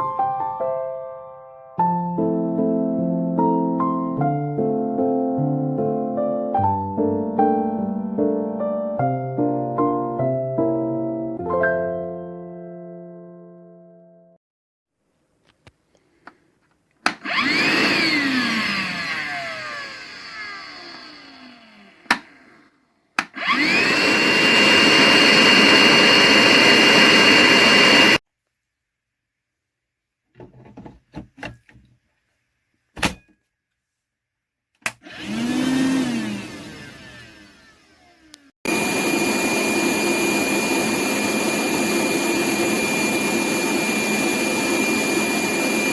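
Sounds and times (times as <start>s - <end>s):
shop vacuum motor whining: 17.1s - 28.2s, 35.0s - 45.9s.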